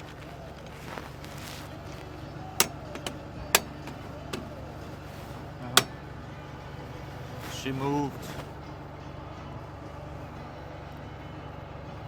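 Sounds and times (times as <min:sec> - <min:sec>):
hammer striking metal: 0:02.6 - 0:04.6, 0:05.8 - 0:06.0.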